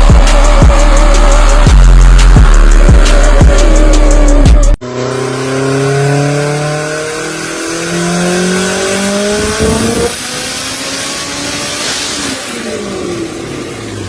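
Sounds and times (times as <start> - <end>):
music with heavy bass beat: 0.0 - 4.8
sports car accelerating hard: 0.0 - 14.0.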